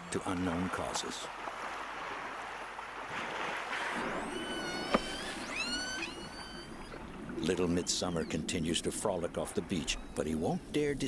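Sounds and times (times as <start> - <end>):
killer whale calls underwater: 3.7 - 8.5.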